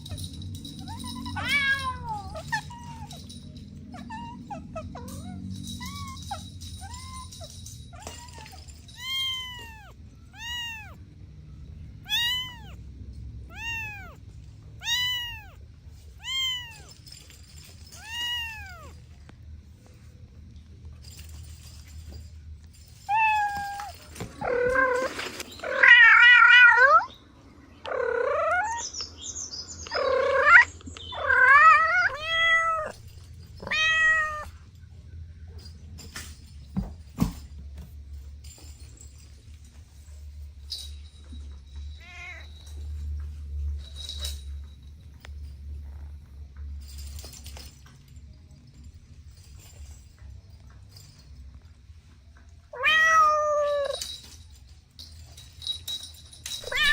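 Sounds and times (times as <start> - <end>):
kittens meowing: 0.8 - 7.4, 8.0 - 11.0, 12.0 - 12.8, 13.5 - 14.2, 14.8 - 15.6, 16.2 - 17.0, 17.9 - 19.0, 27.8 - 28.9, 29.9 - 33.0, 33.6 - 34.6, 52.8 - 54.0, 56.6 - 56.9.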